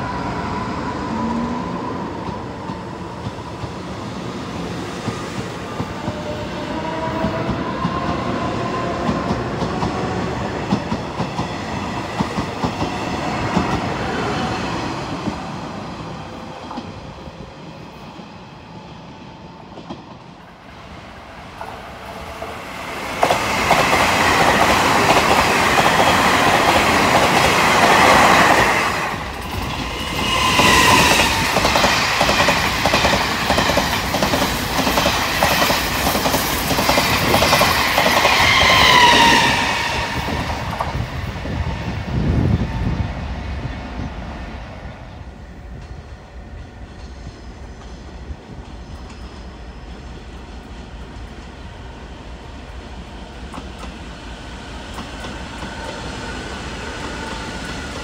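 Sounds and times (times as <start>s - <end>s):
express train rushing past: 0.0s - 58.0s
train wheels clicking over rail joints: 29.2s - 39.1s.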